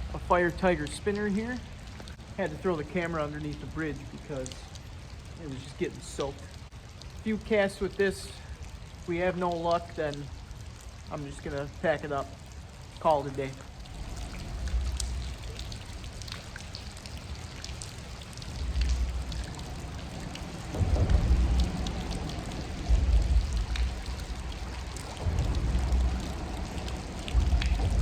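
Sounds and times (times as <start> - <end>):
low rumbles: 0.0 - 6.8, 13.4 - 28.0
hard rain falling: 0.0 - 28.0.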